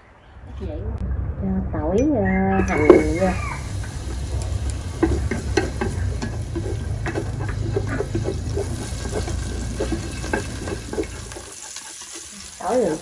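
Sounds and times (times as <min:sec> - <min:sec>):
steady low hum: 0:00.0 - 0:11.5
food sizzling in hot oil: 0:02.6 - 0:13.0
wooden utensil knocking on pot: 0:05.0 - 0:11.5.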